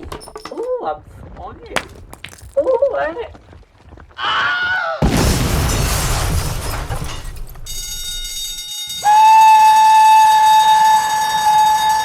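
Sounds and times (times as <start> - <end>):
falling rubble crashing: 5.0 - 8.0
long high whistle blast: 7.8 - 12.0.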